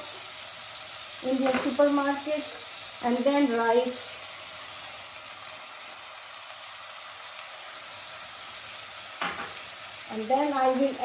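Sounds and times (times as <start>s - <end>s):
ghee sizzling in a pot: 0.0s - 11.0s.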